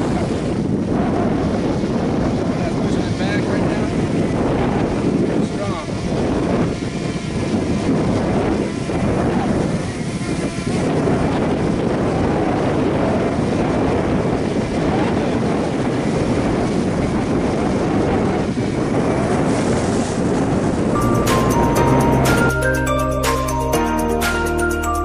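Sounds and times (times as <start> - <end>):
wind buffeting microphone: 0.0 - 22.9
music: 21.0 - 25.0.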